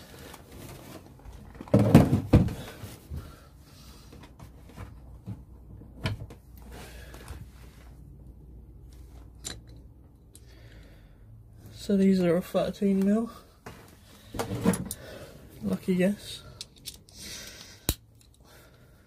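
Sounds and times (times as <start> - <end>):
metal tools clattering: 9.4 - 9.9.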